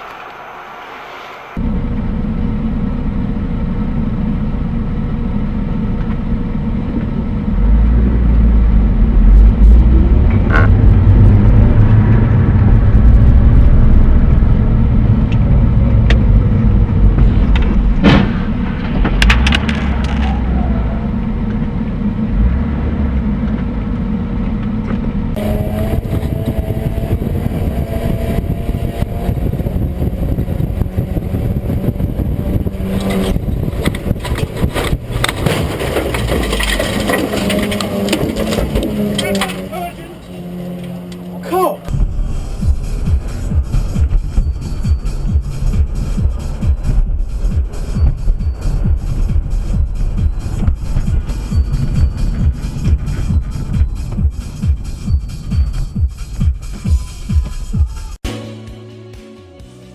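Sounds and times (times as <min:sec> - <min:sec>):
car road and engine rumble: 0:00.0 - 0:58.2
sharp impact bang: 0:17.2 - 0:20.4
clattering: 0:32.9 - 0:39.7.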